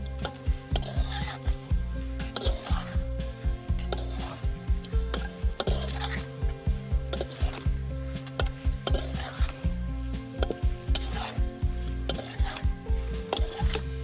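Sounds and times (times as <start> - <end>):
frying sizzle: 0.0 - 14.0
spatula scraping a steel wok: 0.0 - 14.0.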